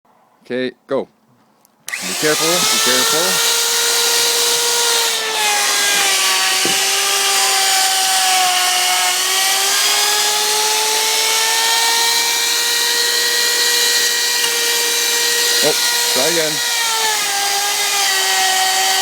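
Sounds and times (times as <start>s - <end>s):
electric router cutting wood: 1.9s - 19.0s.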